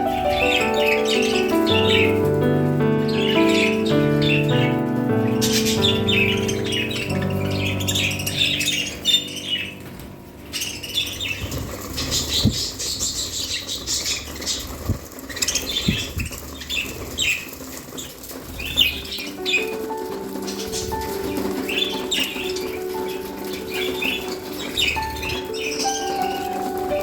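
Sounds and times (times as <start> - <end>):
background music: 0.0 - 12.0, 18.6 - 27.0
budgerigars chirping: 0.0 - 27.0
wings flapping: 0.0 - 27.0.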